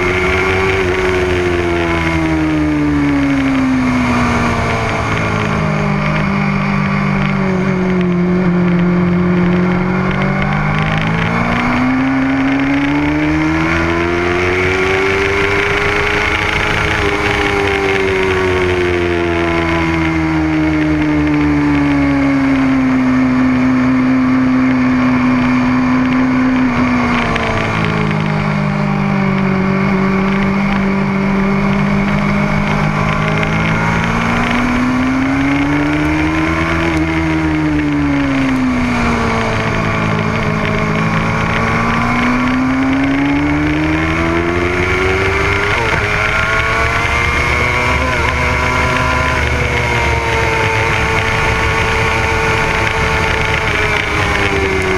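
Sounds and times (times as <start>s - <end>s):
motorcycle engine running hard: 0.0s - 54.9s.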